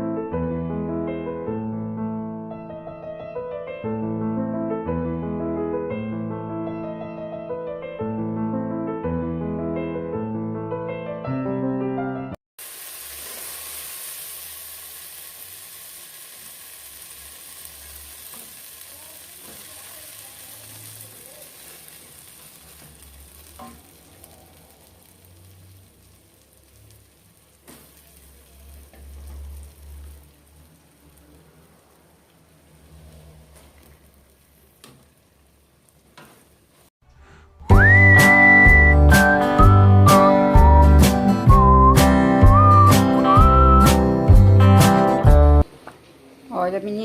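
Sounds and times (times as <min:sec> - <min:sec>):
vegetables sizzling in oil: 0:12.6 - 0:36.9, 0:37.7 - 0:44.1.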